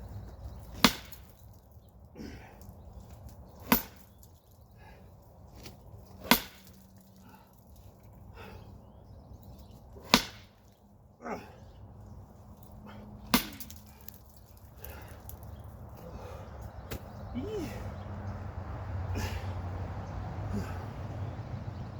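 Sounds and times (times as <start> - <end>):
sledgehammer striking wood: 0.7 - 1.4, 3.6 - 4.1, 6.2 - 6.8, 10.0 - 10.6, 13.3 - 13.8.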